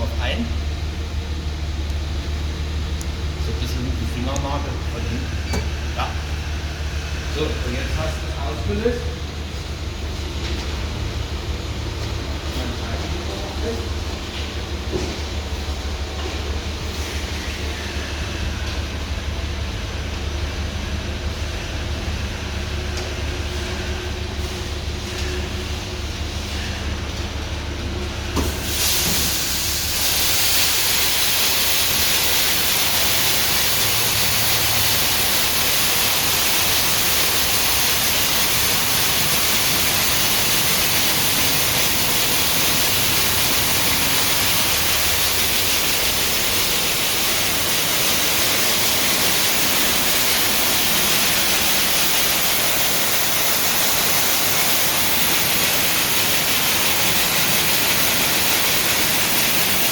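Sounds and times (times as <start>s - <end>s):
spray nozzles blasting water: 28.4s - 59.9s.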